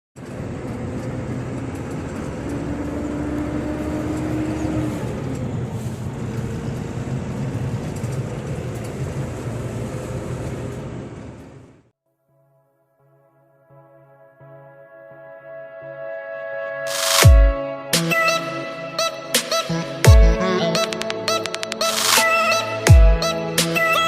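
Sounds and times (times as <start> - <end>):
road noise: 0.2 - 11.9
truck engine hum: 0.2 - 11.9.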